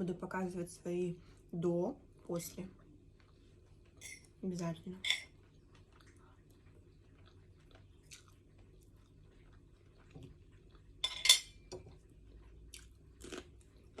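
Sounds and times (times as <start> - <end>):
quiet chewing: 2.7 - 4.4, 5.2 - 14.0
cutlery clinking on a plate: 5.0 - 5.3, 11.0 - 11.6.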